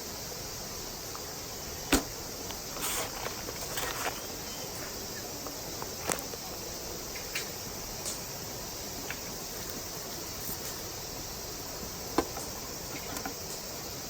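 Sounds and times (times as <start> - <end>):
insects chirring: 0.0 - 14.0
rustle: 0.0 - 14.0
sharp knock: 1.9 - 2.1.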